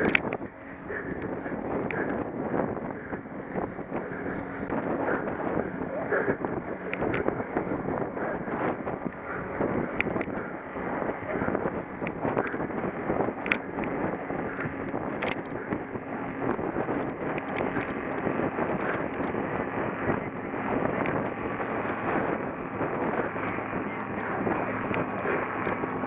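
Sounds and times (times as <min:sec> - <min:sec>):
sharp clicks: 0:00.0 - 0:02.2, 0:06.8 - 0:08.4, 0:09.0 - 0:10.6, 0:13.3 - 0:15.8, 0:17.0 - 0:19.4
bike rattling: 0:00.0 - 0:26.0
wind on microphone: 0:00.0 - 0:26.0.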